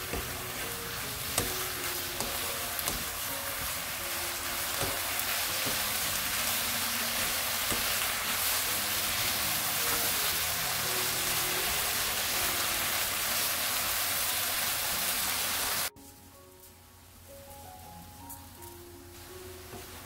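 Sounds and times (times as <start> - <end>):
vegetables sizzling in a pan: 0.0 - 15.9, 19.1 - 20.0.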